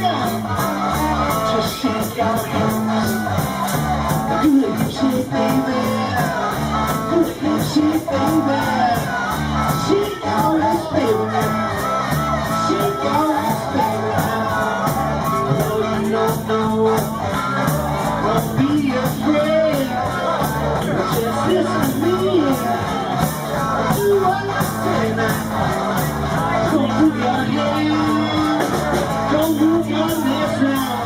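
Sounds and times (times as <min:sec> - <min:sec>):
drums steady beat: 0:00.0 - 0:31.0
live blues-rock band: 0:00.0 - 0:31.0.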